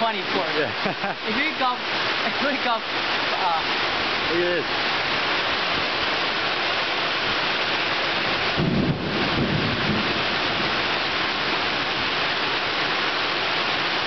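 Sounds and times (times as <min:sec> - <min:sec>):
rain pouring: 0:00.0 - 0:14.0
low rumble of thunder: 0:08.4 - 0:11.2.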